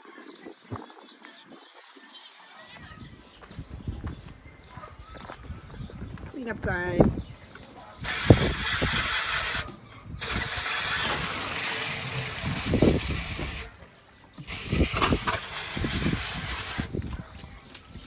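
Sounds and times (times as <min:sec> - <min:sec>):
spray knocking on gear: 0:08.0 - 0:13.7
water spraying from hose nozzle: 0:08.0 - 0:13.8, 0:14.4 - 0:17.8.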